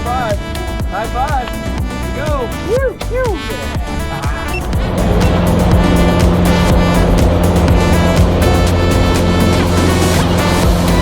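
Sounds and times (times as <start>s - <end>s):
background music with beat: 0.0s - 11.0s
propeller plane engine drone: 3.8s - 11.0s.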